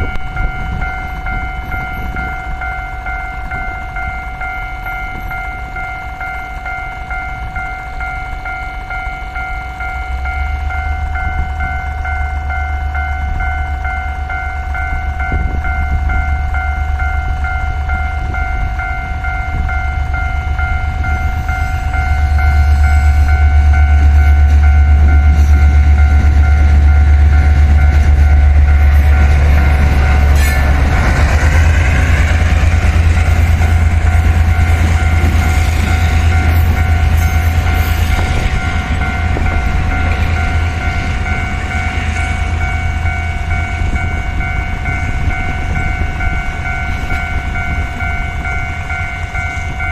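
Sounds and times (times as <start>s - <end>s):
crossing warning bell ringing: 0.0s - 49.9s
locomotive engine rumble: 0.0s - 49.9s
train wheels clattering: 21.2s - 48.7s.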